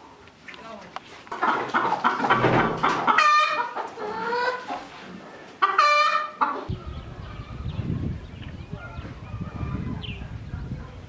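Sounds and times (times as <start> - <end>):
chickens calling: 1.0 - 11.0
chicken squawk: 1.4 - 4.9, 5.6 - 7.6
low rumbling noise: 6.7 - 11.0.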